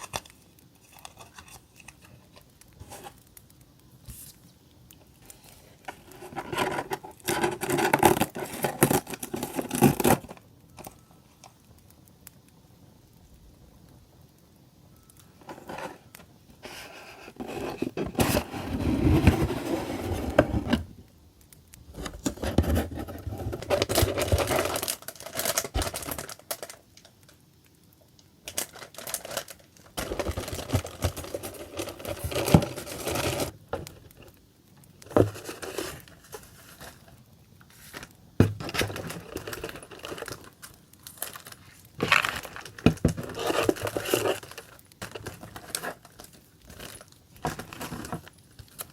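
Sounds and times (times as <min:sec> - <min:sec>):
packaging crinkling and tearing: 0:05.2 - 0:11.5, 0:21.9 - 0:27.4, 0:28.4 - 0:48.9.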